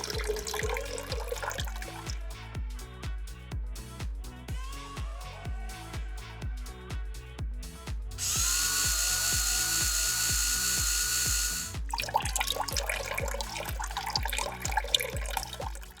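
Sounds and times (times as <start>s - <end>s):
background music with beat: 0.0s - 16.0s
power tool motor running: 8.2s - 11.8s.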